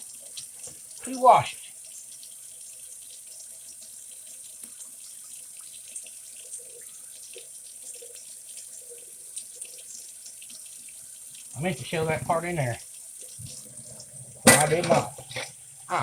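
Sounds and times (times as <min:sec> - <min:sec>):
tap water running into sink: 0:00.0 - 0:16.0
small splashes and clinks: 0:13.4 - 0:15.8.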